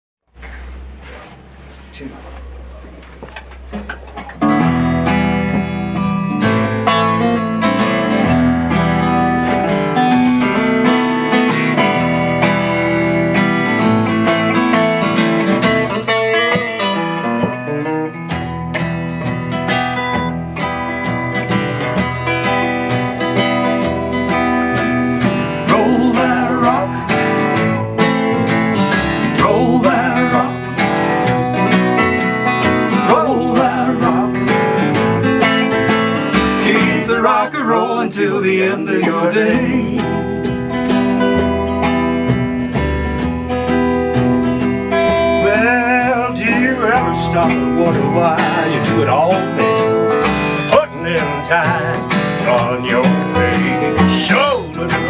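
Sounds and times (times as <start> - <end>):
acoustic guitar strumming: 0.3 - 55.0
walking bass line: 0.3 - 55.0.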